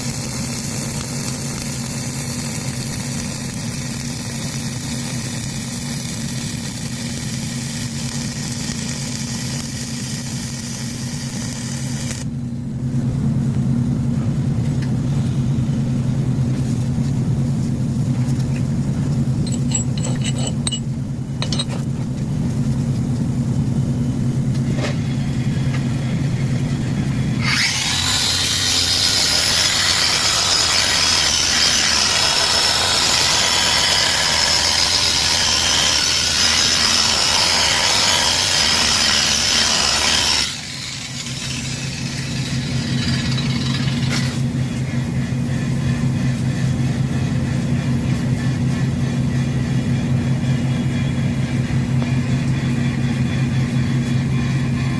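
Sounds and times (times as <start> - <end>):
welding arc hissing and crackling: 0.0 - 12.3, 25.1 - 44.5
steady low hum: 9.6 - 37.3, 40.5 - 54.9.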